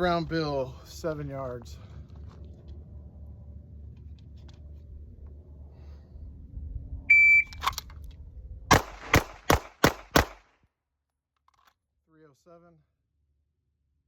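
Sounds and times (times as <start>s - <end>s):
shot timer beep: 7.1s - 7.6s
pistol shots: 8.7s - 10.5s.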